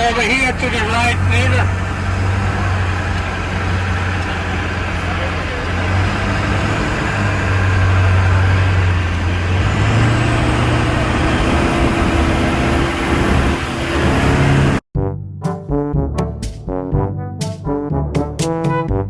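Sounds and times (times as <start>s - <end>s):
truck engine droning: 0.0s - 14.8s
brass music: 11.2s - 19.0s.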